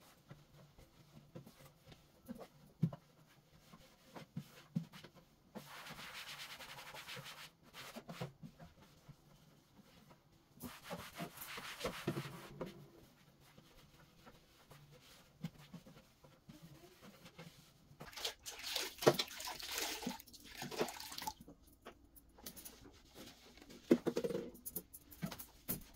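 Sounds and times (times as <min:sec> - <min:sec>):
surface being rubbed: 0:10.6 - 0:17.8.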